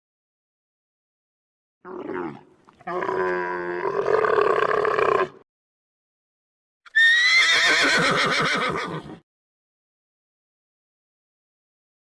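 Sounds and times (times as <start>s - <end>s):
horse whinnying: 6.9s - 9.2s.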